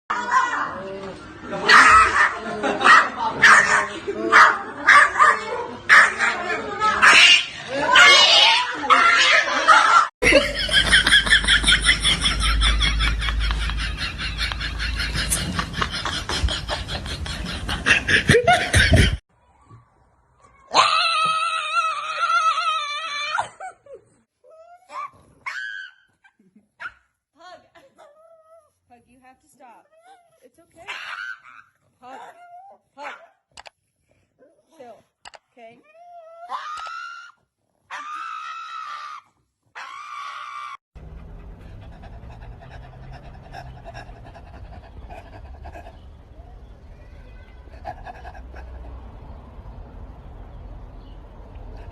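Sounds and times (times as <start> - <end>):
hearty laughter: 9.3 - 19.2
dog panting: 41.0 - 46.9, 47.5 - 49.6.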